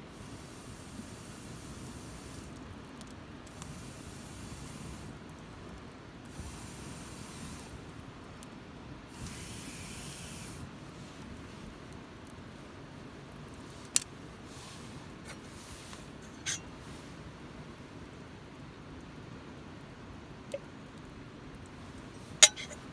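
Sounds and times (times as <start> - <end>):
campfire burning with soft hiss: 0.0 - 22.9
sharp pops from burning wood: 0.2 - 8.6.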